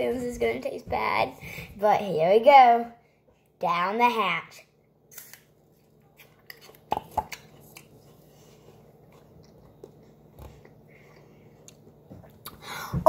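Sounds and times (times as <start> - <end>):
apple crunching: 5.1 - 8.2
child chewing: 5.1 - 12.7.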